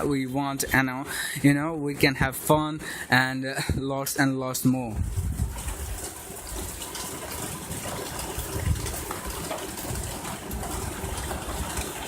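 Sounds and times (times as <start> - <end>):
steady rain hiss: 4.6 - 12.0.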